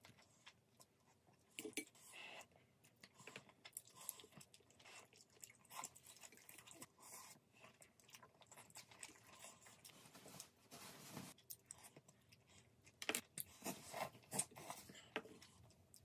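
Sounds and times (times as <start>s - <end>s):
person chewing: 0.0s - 9.9s.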